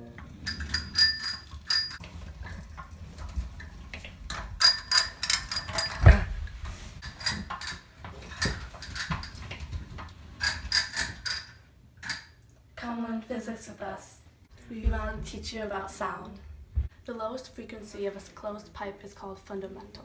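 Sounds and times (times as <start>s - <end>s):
metallic clicks and dings: 0.4s - 2.0s, 4.6s - 6.1s.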